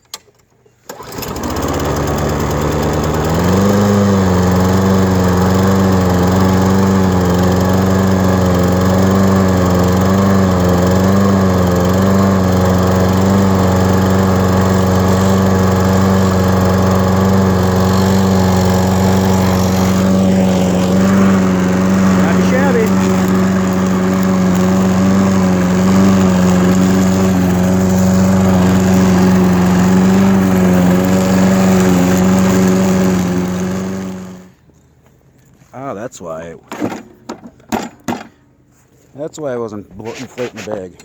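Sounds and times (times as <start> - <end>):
lawn mower engine running: 0.8 - 34.8.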